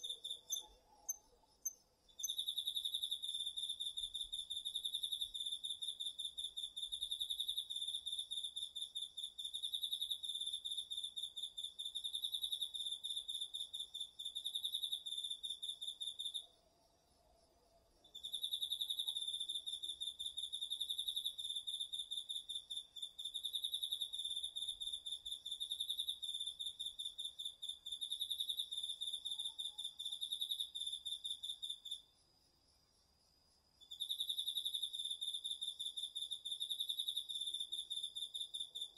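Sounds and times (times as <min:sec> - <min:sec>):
cricket trilling: 0:00.0 - 0:17.2, 0:33.7 - 0:38.9.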